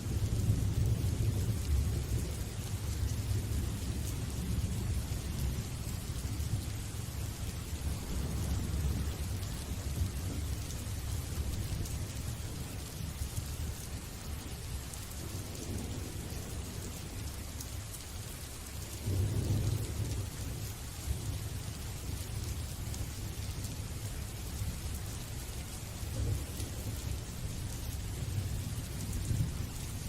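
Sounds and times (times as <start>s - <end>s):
rain hissing: 0.4s - 11.6s
thunder rumbling: 7.8s - 10.4s.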